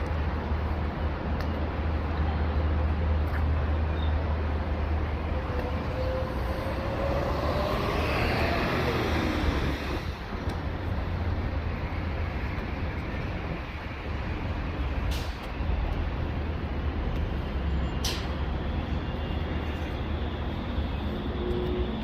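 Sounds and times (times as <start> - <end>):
road traffic rumble: 0.0 - 22.0
vehicle passing by: 5.2 - 10.3.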